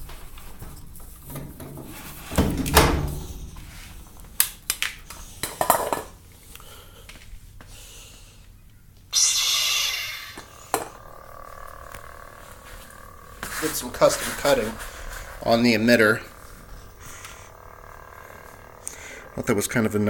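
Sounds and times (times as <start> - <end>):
faint steady hum: 0.0 - 20.0
lightsaber hissing effect: 9.2 - 20.0.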